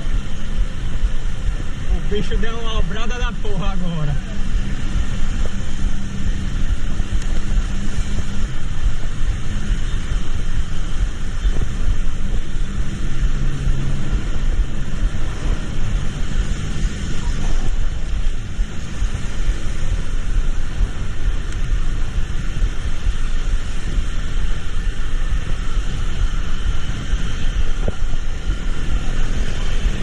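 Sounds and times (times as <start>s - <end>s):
rain and road noise hiss: 0.0s - 30.0s
vehicle engine drone: 0.0s - 30.0s.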